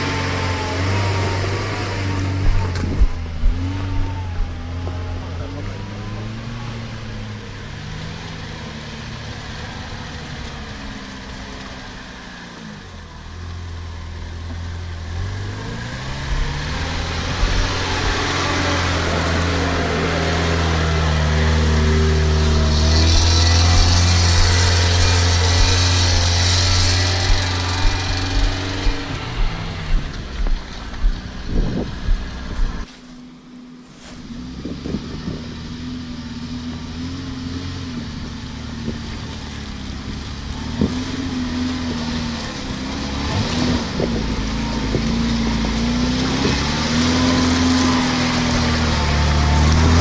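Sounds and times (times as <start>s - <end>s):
off-road vehicle engine under load: 0.0s - 50.0s
regular knocks: 22.9s - 32.8s.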